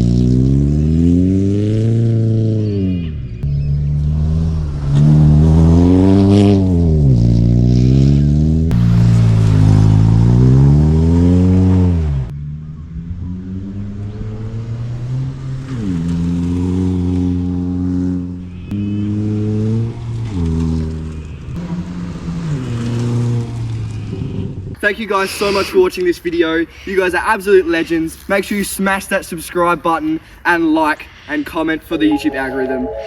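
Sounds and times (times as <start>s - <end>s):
car exhaust revving: 0.0s - 13.5s.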